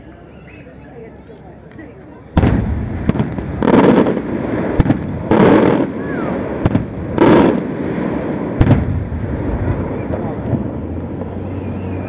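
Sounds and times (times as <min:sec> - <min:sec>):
heavy firework booms: 0:02.4 - 0:11.0
firework cracks: 0:02.4 - 0:12.0.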